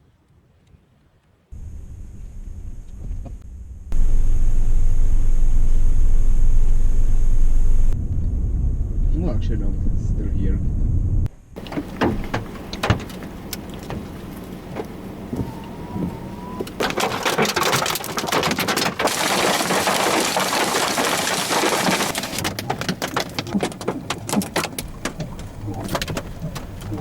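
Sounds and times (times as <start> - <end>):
hail and rain hitting a car: 16.8 - 27.0.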